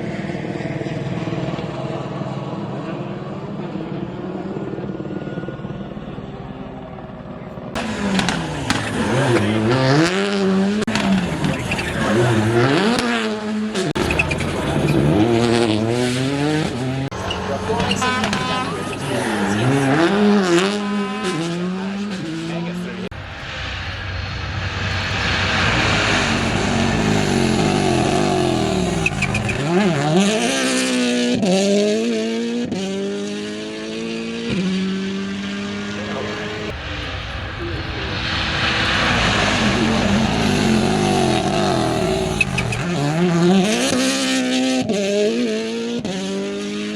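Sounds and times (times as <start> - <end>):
rally car engine revving: 7.7 - 46.9
gearshift crack: 23.1 - 30.9.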